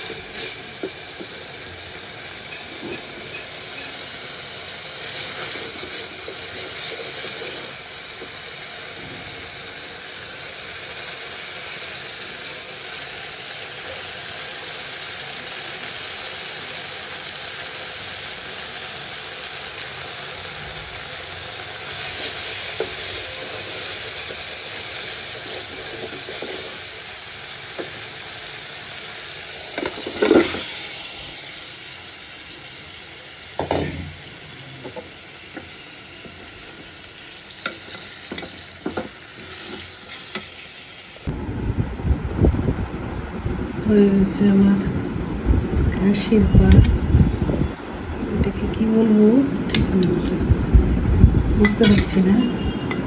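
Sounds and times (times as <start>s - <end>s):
masala sizzling in a pot: 0.0s - 41.4s
wooden spatula scraping a pot: 2.5s - 4.0s, 5.0s - 7.8s, 22.2s - 26.9s, 37.7s - 40.5s.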